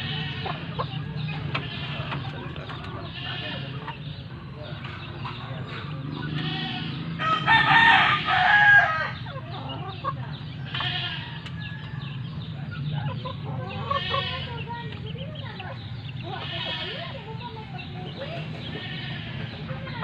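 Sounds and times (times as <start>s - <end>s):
rooster crowing: 6.7s - 9.2s.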